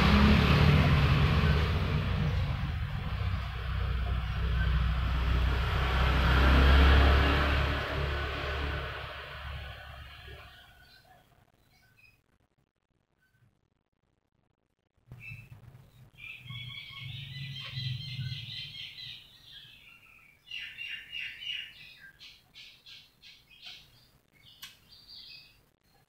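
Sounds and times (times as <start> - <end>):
low hum: 0.0 - 10.8
small birds chirping: 1.3 - 5.7, 7.7 - 12.2, 15.1 - 26.0.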